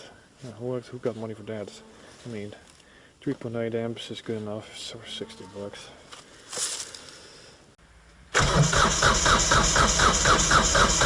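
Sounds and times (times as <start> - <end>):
diesel engine starter cranking: 8.3 - 11.0.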